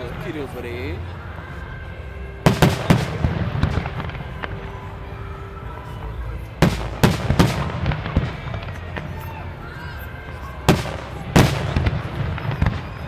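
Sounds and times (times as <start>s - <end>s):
fireworks bursting in loud bangs: 2.4s - 4.9s, 6.6s - 9.4s, 10.6s - 13.0s.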